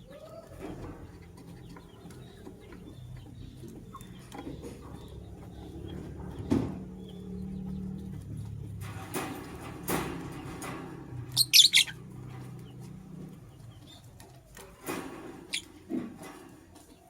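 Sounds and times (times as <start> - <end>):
lovebird chirping: 11.3 - 12.0.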